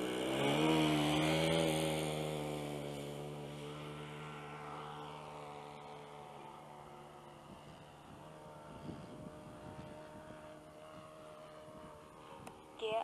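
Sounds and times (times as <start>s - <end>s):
model airplane engine droning: 0.0s - 13.0s
wind buffeting microphone: 7.2s - 12.9s.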